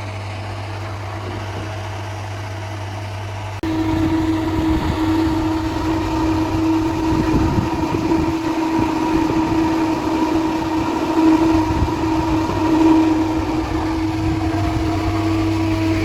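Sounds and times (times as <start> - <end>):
heavy machinery hum: 0.0 - 16.0
low rumble: 3.6 - 16.0.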